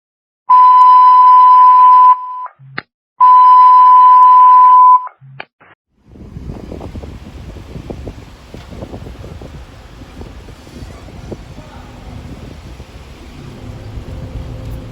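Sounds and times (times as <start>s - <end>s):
long electronic beeps: 0.5s - 2.6s, 3.2s - 5.2s
wind noise: 6.0s - 14.9s.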